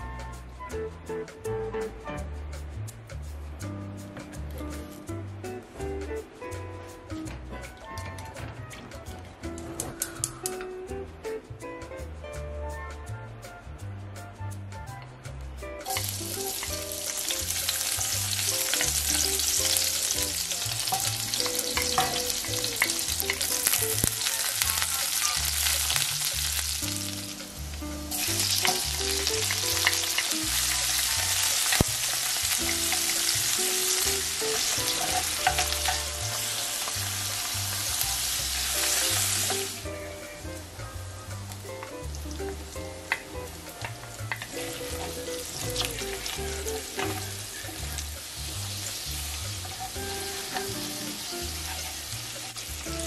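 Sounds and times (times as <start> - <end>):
onion sizzling in oil: 15.7 - 53.0
chopsticks stirring pan: 15.8 - 27.5, 28.1 - 39.8, 41.4 - 52.9.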